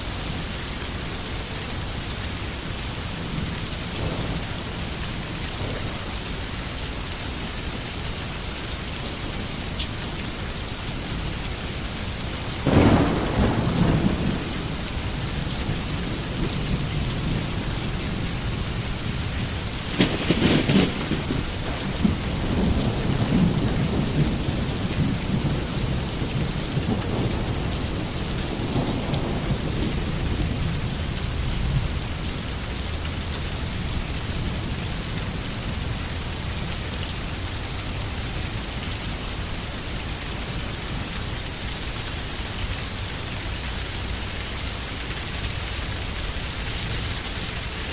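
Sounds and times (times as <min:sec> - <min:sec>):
heavy rain falling: 0:00.0 - 0:47.9
rolling thunder: 0:03.1 - 0:07.4, 0:12.4 - 0:32.2
sharp thunderclap: 0:03.3 - 0:06.5, 0:12.5 - 0:31.0.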